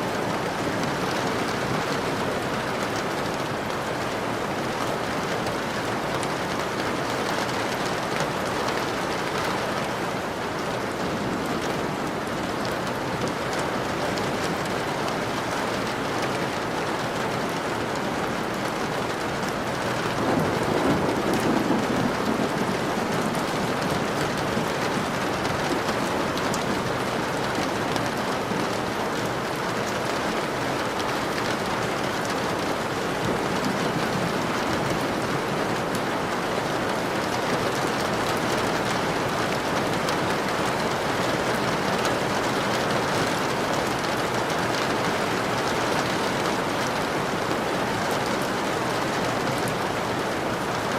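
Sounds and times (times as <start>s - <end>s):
dense rainfall: 0.0s - 50.9s
low rumble of thunder: 20.1s - 25.6s.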